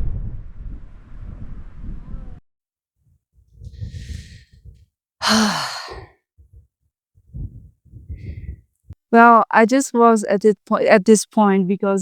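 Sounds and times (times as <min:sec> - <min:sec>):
person breathing out hard: 0:03.8 - 0:04.6, 0:05.2 - 0:06.1
loud long sigh: 0:05.2 - 0:06.1.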